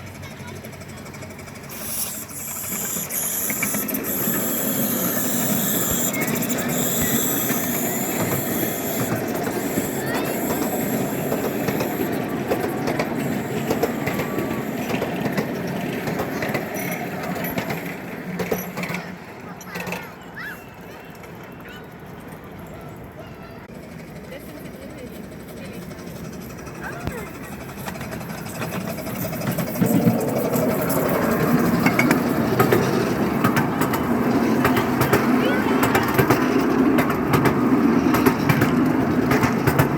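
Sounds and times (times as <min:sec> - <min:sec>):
miniature train wheels clicking on rails: 0:00.0 - 0:39.9
train wheels clattering over rail joints: 0:25.2 - 0:39.9.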